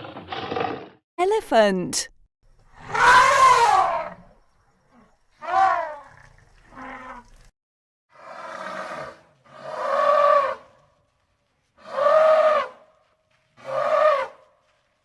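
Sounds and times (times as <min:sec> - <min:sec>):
elephant trumpeting: 0:02.8 - 0:04.2.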